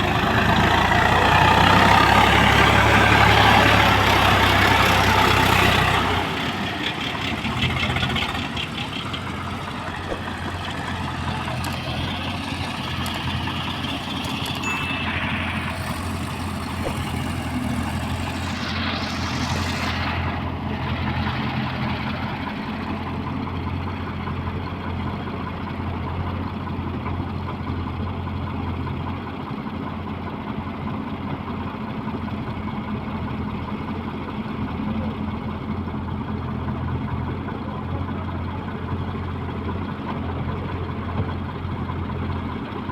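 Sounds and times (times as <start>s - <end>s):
diesel engine running: 0.0s - 42.9s
hiss: 15.7s - 20.4s.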